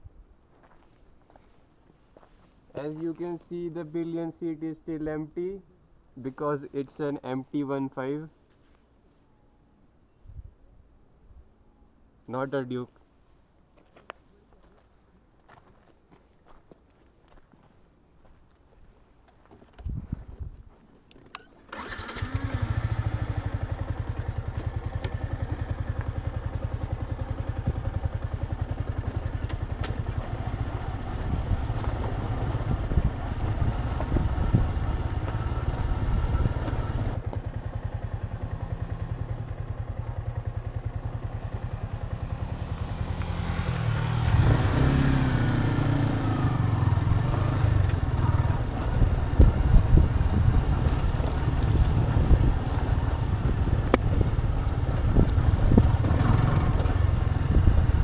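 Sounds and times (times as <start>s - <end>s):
motorcycle engine running: 21.8s - 58.0s.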